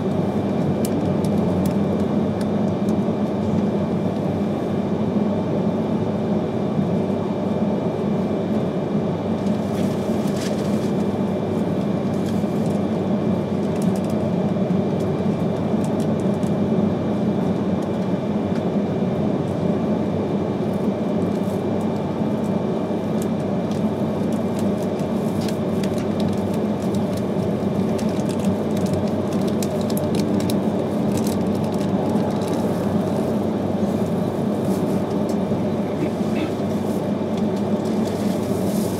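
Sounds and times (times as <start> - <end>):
train wheels rumbling on rail: 23.2 - 38.9.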